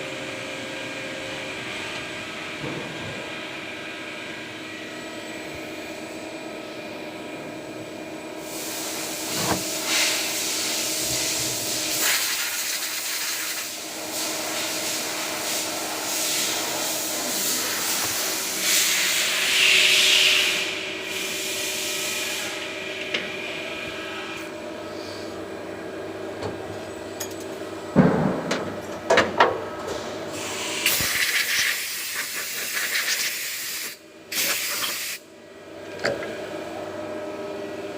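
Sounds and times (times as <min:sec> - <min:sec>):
loud hiss: 0:30.4 - 0:35.2.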